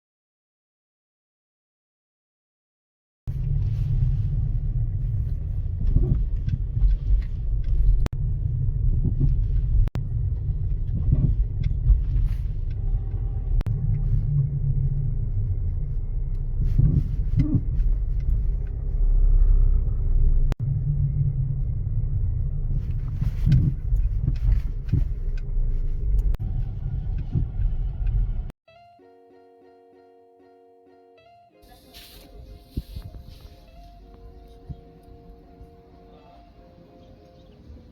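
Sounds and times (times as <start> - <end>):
suspension knocks and clunks: 3.3 - 28.5
car engine rumble: 3.3 - 28.6, 31.7 - 37.9.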